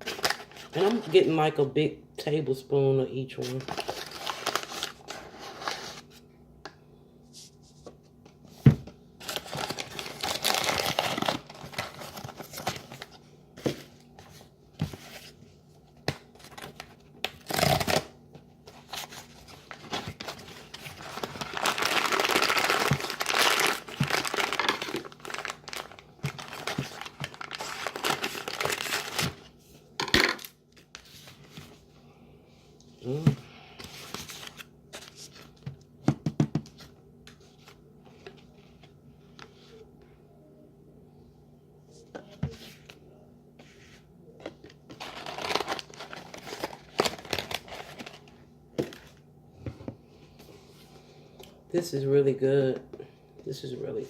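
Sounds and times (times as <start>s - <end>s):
bags crinkling and rustling: 9.2s - 13.1s, 18.8s - 29.4s, 44.9s - 49.2s.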